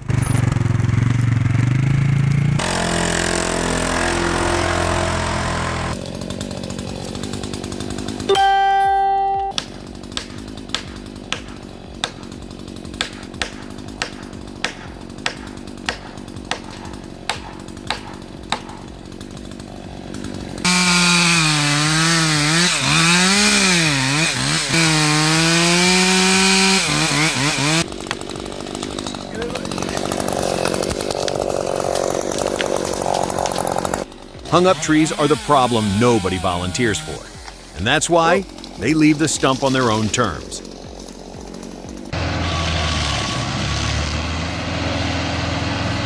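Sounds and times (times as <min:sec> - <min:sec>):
chainsaw running at high revs: 0:00.0 - 0:46.0
steady tone: 0:08.3 - 0:09.6
sharp regular clicks: 0:09.6 - 0:20.7.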